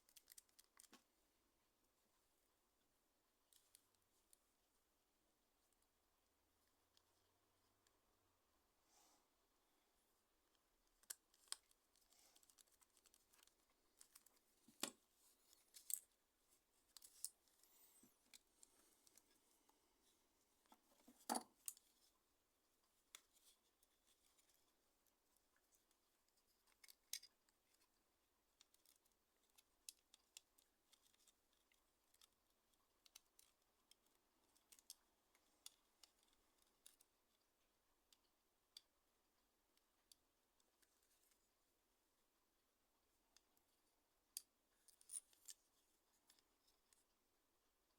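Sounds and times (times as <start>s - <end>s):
small tools clicking and scraping: 10.9s - 16.1s.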